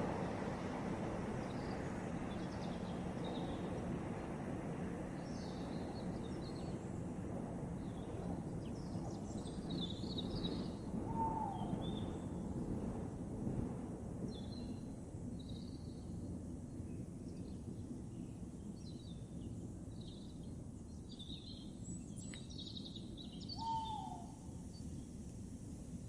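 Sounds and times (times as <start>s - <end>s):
small birds chirping: 1.4s - 3.8s, 7.8s - 10.9s, 16.7s - 25.1s.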